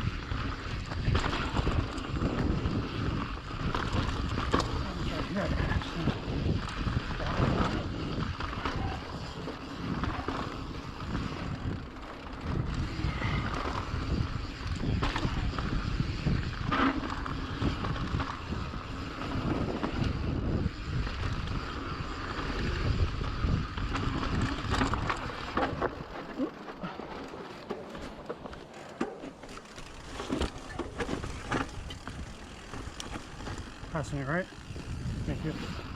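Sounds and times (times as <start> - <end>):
wind buffeting microphone: 0.0 - 27.3, 29.9 - 35.9
bike rattling over bumps: 0.0 - 35.9
tyres rumbling over dirt: 21.6 - 35.9.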